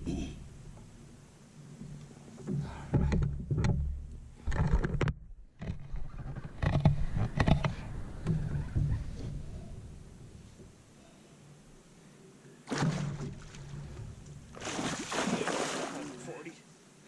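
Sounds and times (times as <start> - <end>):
knocks and rattles in a boat: 1.8 - 9.6.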